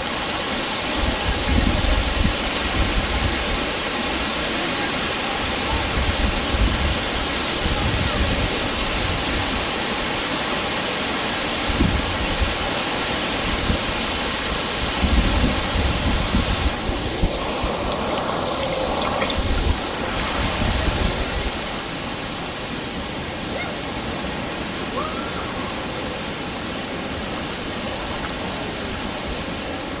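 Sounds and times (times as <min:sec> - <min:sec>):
waterfall rushing: 0:12.2 - 0:28.1.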